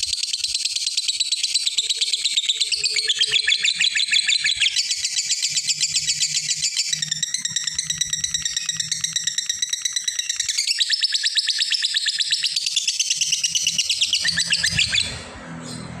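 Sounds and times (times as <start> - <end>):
lovebird shrill chatter: 4.8 - 15.9.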